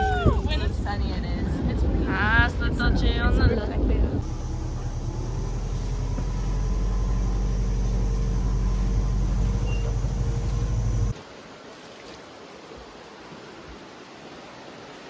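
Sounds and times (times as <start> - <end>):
vehicle engine humming: 4.2 - 11.2.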